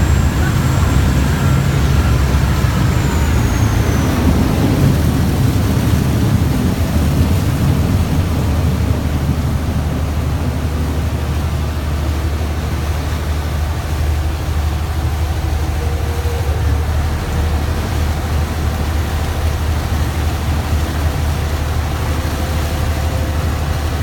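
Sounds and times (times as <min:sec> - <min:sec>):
boat engine droning: 0:00.0 - 0:24.0.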